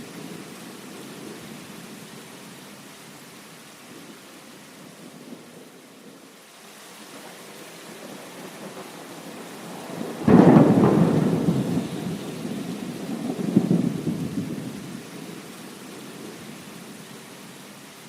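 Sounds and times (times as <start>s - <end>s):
rain hissing: 0.0s - 18.0s
thunder rumbling: 8.0s - 15.4s.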